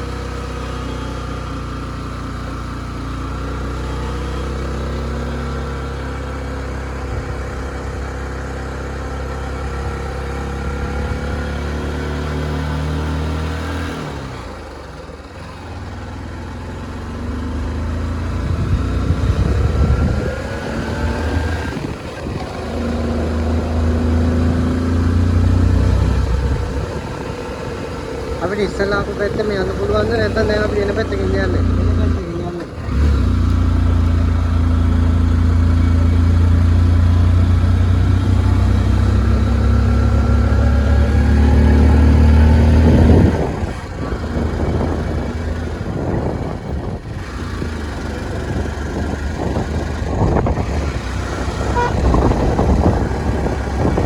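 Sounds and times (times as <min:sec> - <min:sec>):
vehicle engine running: 0:00.0 - 0:54.0
wind gusting on microphone: 0:18.2 - 0:30.1, 0:42.2 - 0:54.0.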